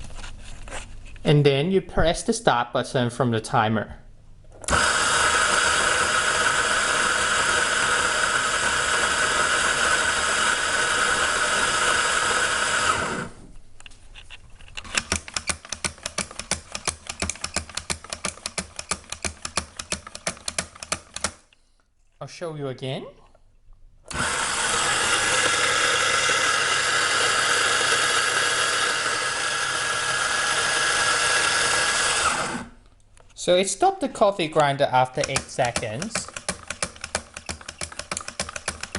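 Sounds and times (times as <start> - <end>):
electric coffee grinder running: 4.7 - 13.4, 24.1 - 32.8
sharp clicks: 14.8 - 21.6, 34.6 - 38.9.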